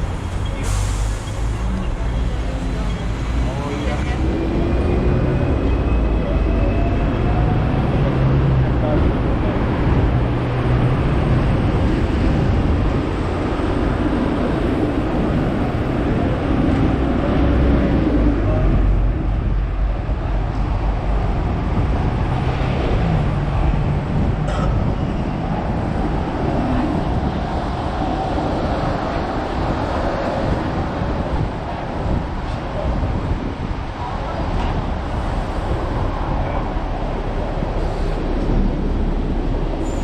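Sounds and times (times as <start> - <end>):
tram rumbling on tracks: 0.0 - 40.0.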